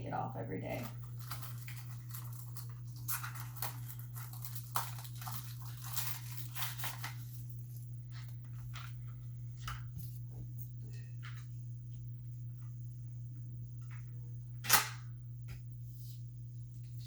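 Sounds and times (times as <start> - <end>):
steady low hum: 0.0 - 17.0
packaging crinkling and rustling: 0.7 - 9.9.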